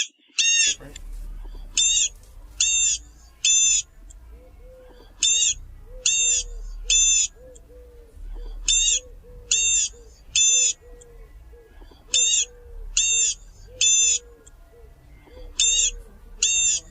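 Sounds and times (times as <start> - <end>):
bird calling high notes: 0.0 - 16.9
soft low bird notes: 0.5 - 16.9.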